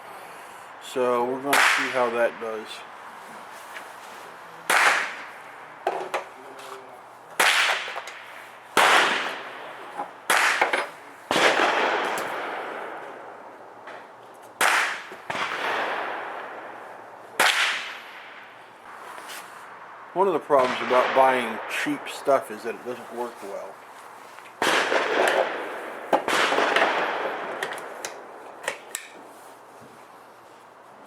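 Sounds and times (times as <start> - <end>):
faint distant gunshots: 4.6 - 6.6, 7.4 - 19.0, 19.6 - 23.7, 24.6 - 28.8
rifle shots with echo: 4.7 - 5.7, 7.4 - 13.6, 14.6 - 19.0, 20.5 - 23.3, 24.6 - 28.8.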